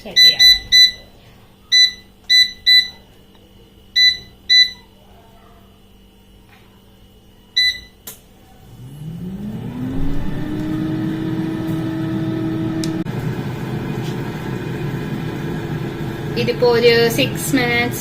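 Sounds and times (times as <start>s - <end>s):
air fryer beep: 0.0s - 3.1s, 3.9s - 4.9s, 7.5s - 8.1s
air fryer fan whirring: 0.0s - 18.0s.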